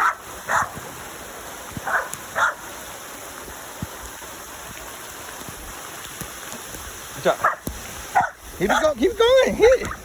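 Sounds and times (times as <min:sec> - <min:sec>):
dog barking: 0:00.0 - 0:00.8, 0:01.8 - 0:02.6, 0:07.4 - 0:08.4
steady hiss: 0:00.0 - 0:10.0.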